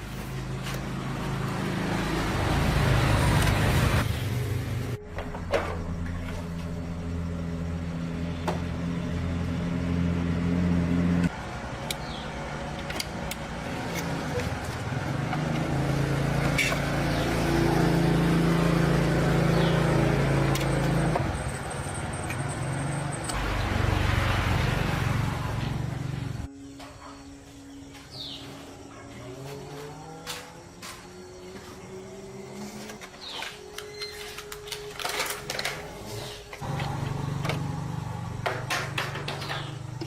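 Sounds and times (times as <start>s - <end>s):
vehicle engine running: 0.0s - 26.5s, 36.5s - 40.0s.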